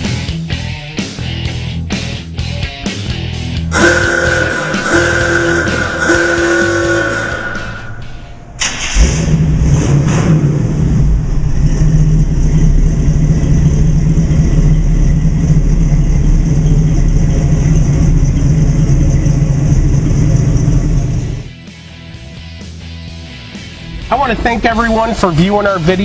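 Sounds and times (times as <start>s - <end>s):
car engine cranking and starting: 3.3s - 21.5s.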